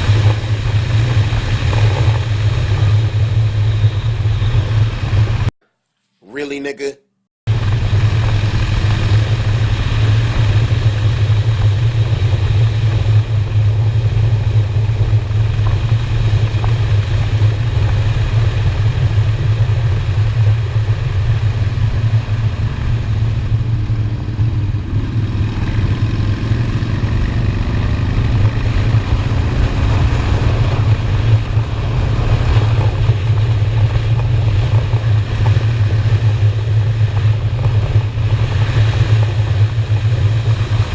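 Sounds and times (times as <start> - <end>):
motorcycle engine running: 0.0 - 5.5, 7.5 - 40.9
road and wind noise: 0.0 - 5.5, 7.5 - 40.9.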